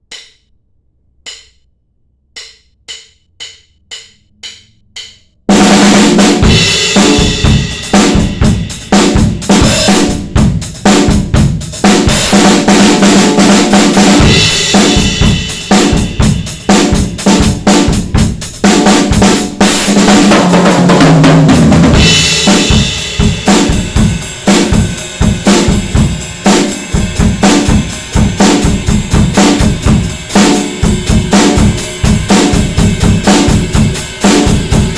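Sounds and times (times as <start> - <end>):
drum kit groove: 0.0 - 0.5, 1.1 - 1.6, 2.2 - 34.9
drum stick count-in ticks: 0.0 - 6.2.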